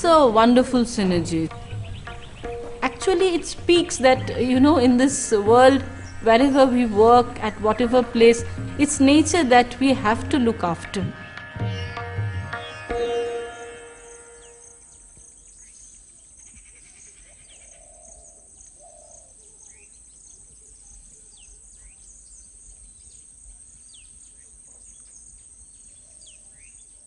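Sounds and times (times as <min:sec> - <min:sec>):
sitar music: 0:00.0 - 0:15.6
bird chirps: 0:01.5 - 0:03.4, 0:11.1 - 0:27.0
insects trilling: 0:01.5 - 0:26.8.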